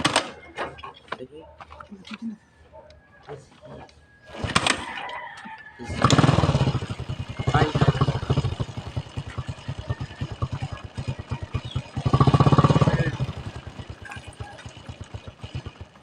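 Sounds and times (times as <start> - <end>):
motorcycle engine revving: 3.3 - 16.0.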